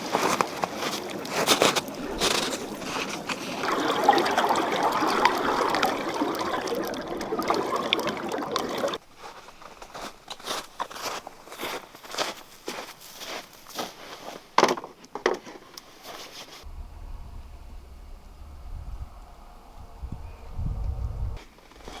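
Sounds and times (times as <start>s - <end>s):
water pouring with splashes: 0.0s - 9.0s.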